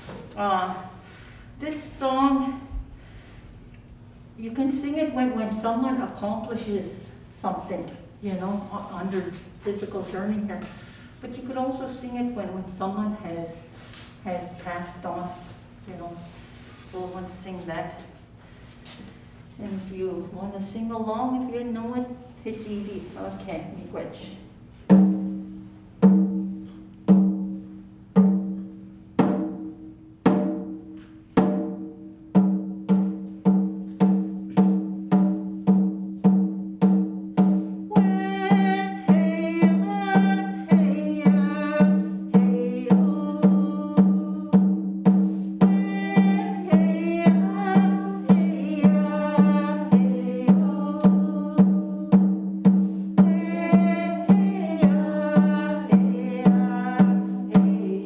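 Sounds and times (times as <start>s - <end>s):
hand drum beating: 24.9s - 58.0s
person singing: 37.9s - 44.7s, 45.6s - 52.2s, 53.2s - 58.0s.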